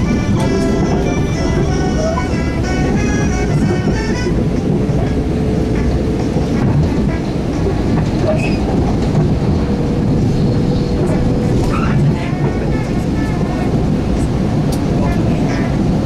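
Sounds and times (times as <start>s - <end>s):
train rumbling on track: 0.0s - 16.0s
high squeaks: 7.6s - 8.7s.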